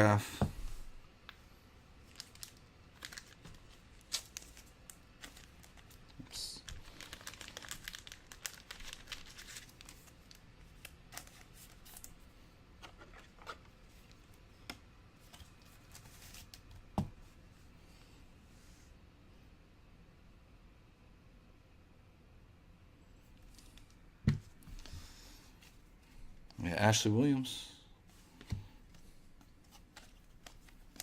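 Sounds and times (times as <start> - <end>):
plastic packaging crinkling: 2.0 - 12.2.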